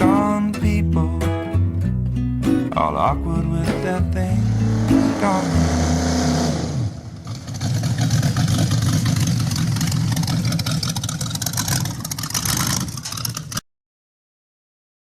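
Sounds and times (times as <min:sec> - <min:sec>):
song: 0:00.0 - 0:07.0
truck engine rough rumble: 0:03.2 - 0:13.6.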